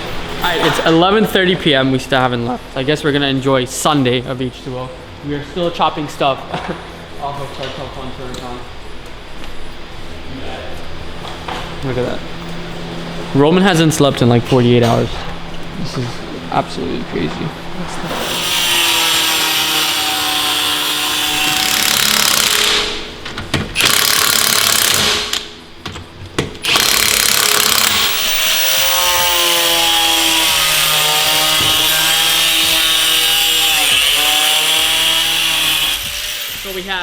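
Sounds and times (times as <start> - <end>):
power tool cutting metal: 18.1 - 23.0, 23.8 - 25.5, 26.6 - 37.0.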